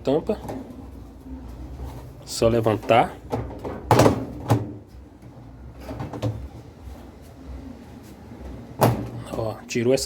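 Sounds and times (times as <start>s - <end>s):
plastic panel knocking and rattling: 2.9s - 4.8s.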